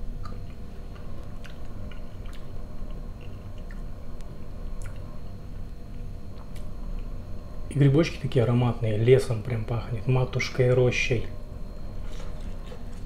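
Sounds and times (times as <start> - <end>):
person chewing food: 0.2 - 3.8.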